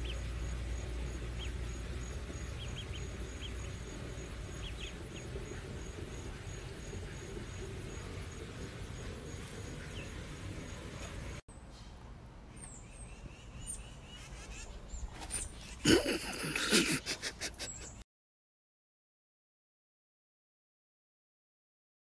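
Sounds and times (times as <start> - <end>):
ducklings peeping: 0.0 - 11.4
low outdoor rumble: 0.0 - 18.0.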